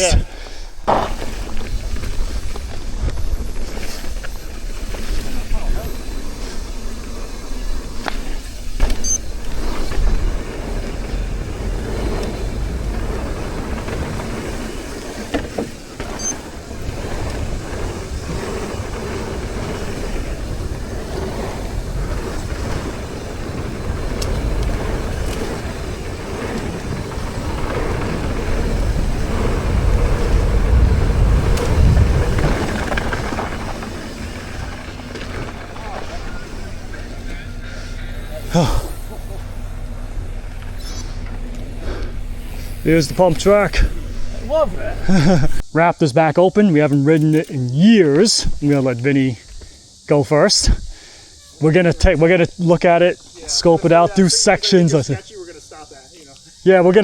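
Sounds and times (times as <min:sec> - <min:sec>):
bike rattles and clicks: 0:00.3 - 0:45.7
tyre rumble on dirt: 0:00.8 - 0:38.4
wind on microphone: 0:16.2 - 0:36.3.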